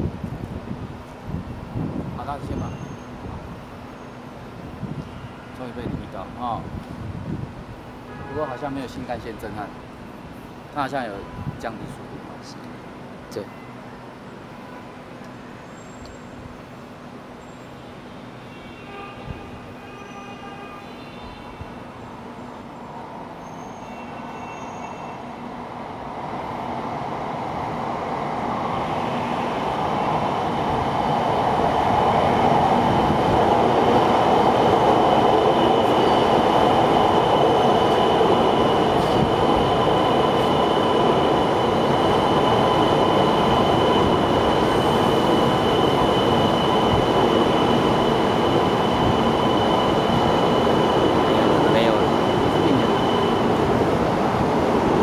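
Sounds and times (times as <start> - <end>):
electric train running past: 0.0 - 55.0
thin high whine: 37.4 - 53.8.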